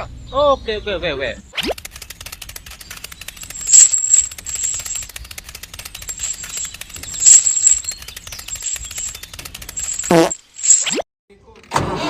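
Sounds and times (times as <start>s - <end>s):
rapid mechanical clicking: 1.6s - 10.8s.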